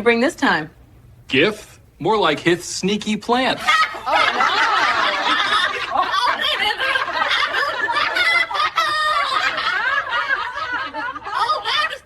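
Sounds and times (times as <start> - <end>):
people laughing: 3.6 - 12.0.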